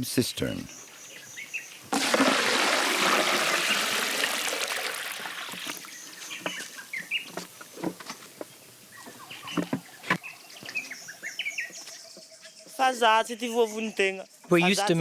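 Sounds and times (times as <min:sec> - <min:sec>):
small birds chirping: 0:00.0 - 0:01.9, 0:05.2 - 0:15.0
water splashing and pouring: 0:01.9 - 0:06.1
hollow knocks: 0:09.1 - 0:10.2.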